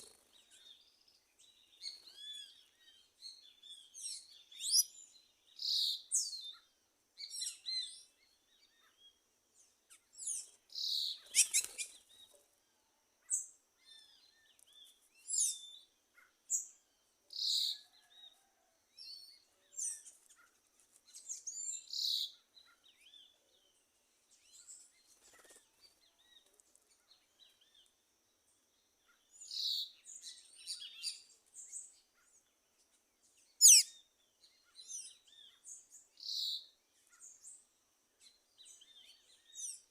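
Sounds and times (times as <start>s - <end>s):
wild birds chirping and whistling: 0.0s - 12.5s, 13.2s - 39.9s.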